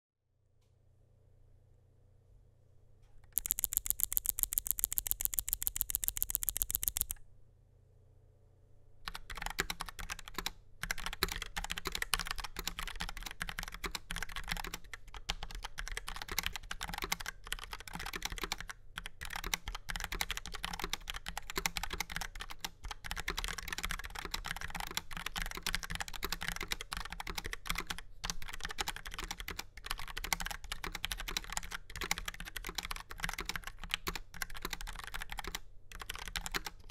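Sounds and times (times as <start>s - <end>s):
rapid sharp high clicks: 3.2s - 7.2s
typing on mechanical keyboard: 3.3s - 7.2s, 9.1s - 36.9s.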